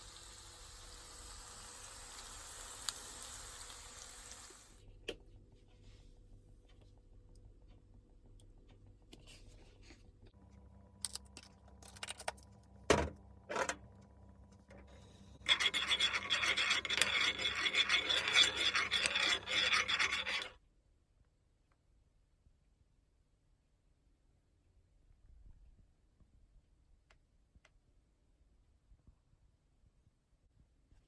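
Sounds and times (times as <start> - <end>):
rough scraping against surface: 14.7 - 20.6.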